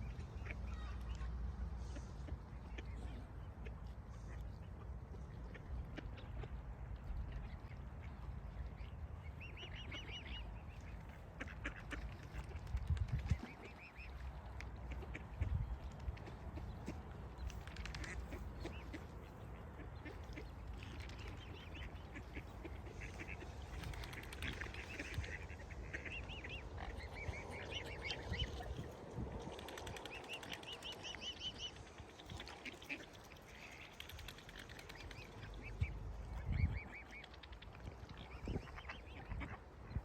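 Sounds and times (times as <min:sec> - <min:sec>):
steady low rumble: 0:00.0 - 0:33.0
waterfowl quacking and honking: 0:17.9 - 0:28.8, 0:34.9 - 0:40.0.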